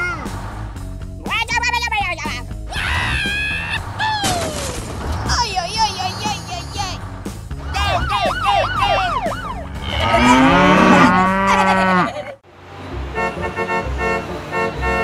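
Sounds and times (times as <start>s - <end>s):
chirpy rising and falling tones: 7.6s - 12.0s
cow mooing: 9.6s - 12.2s.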